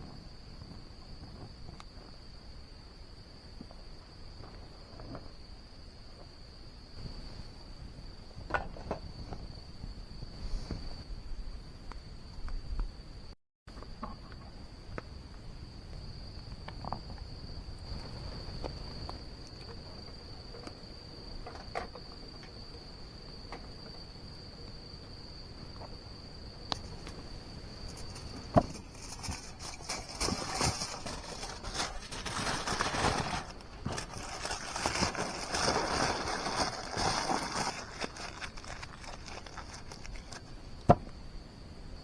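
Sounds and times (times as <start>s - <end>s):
cricket trilling: 0.0s - 42.0s
rustling and crackling: 26.7s - 41.2s.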